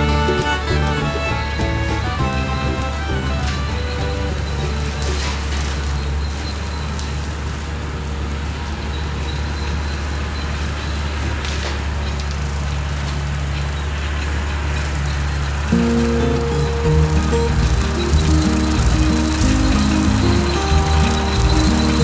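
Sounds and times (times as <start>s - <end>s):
mowing machine engine drone: 0.0s - 6.2s, 15.8s - 22.0s.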